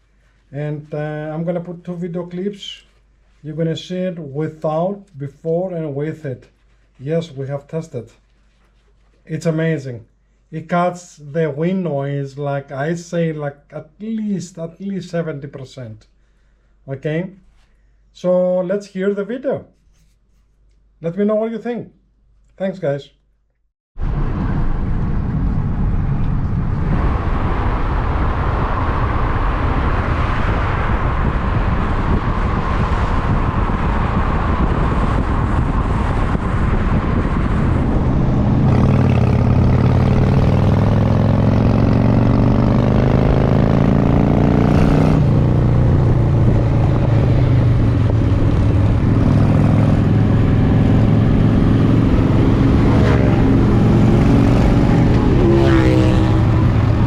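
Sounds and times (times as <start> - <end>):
vehicle engine: 24.0 - 57.0
wind rumble on microphone: 24.0 - 57.0.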